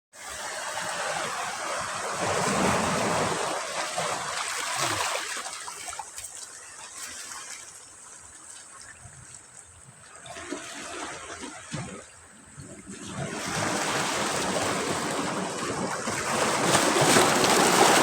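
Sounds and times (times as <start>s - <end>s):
sea waves crashing on beach: 0.2s - 6.1s, 13.0s - 18.0s.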